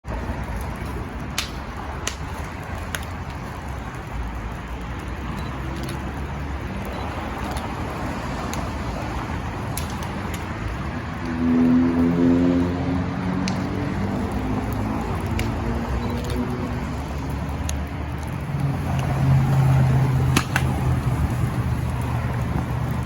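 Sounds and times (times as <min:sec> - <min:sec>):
road traffic rumble: 0:00.0 - 0:23.0
sharp pops or clicks: 0:00.5 - 0:04.2, 0:06.8 - 0:11.4, 0:13.4 - 0:23.0.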